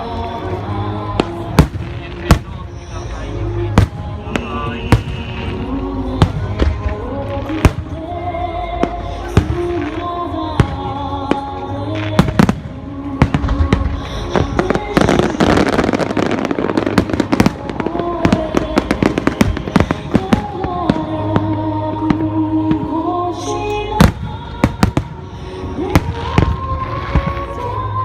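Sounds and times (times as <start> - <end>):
fireworks crackling: 0.0 - 28.0
music with held notes: 0.0 - 28.0
fireworks bangs: 1.2 - 8.1, 12.1 - 23.0.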